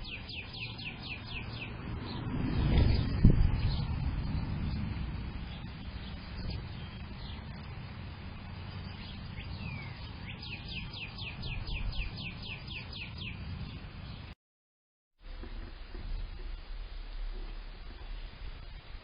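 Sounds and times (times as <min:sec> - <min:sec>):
steady low rumble: 0:00.0 - 0:14.3.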